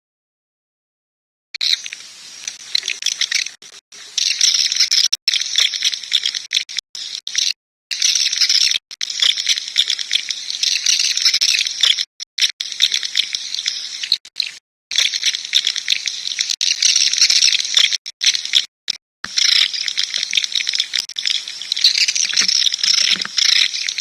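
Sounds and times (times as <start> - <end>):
swiftlets twittering: 1.6 - 6.8, 19.3 - 24.0.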